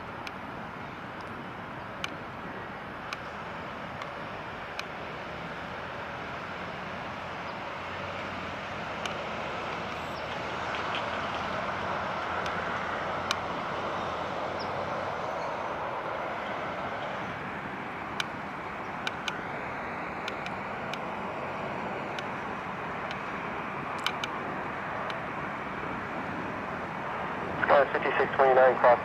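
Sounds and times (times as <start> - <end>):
distant engines rushing: 0.0 - 29.0
sharp clicks: 20.2 - 21.0, 23.9 - 24.4.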